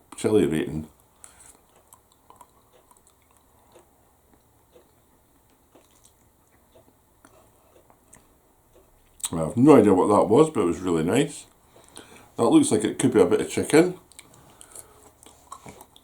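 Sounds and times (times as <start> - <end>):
chewing noodles: 1.5 - 8.3, 14.1 - 16.0.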